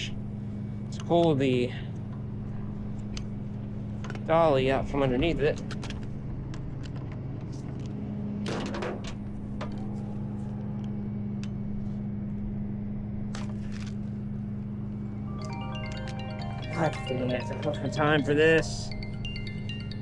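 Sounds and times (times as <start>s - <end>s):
tow truck engine humming: 0.0s - 20.0s.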